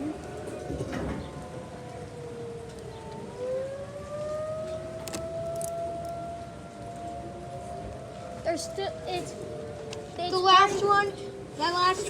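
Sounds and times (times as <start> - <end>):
tornado warning siren wailing: 0.0 - 12.0.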